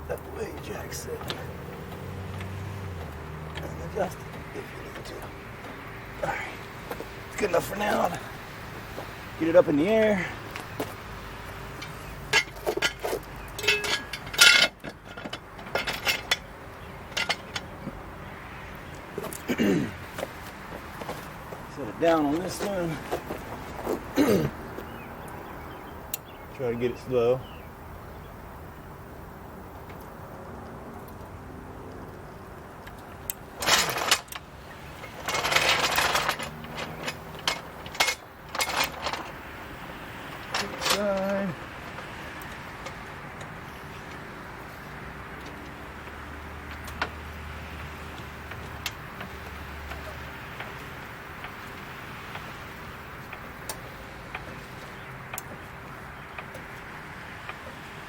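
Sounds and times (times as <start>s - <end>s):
metallic rattling: 10.8s - 18.1s, 33.3s - 58.0s
floor jack clinking: 11.8s - 16.4s.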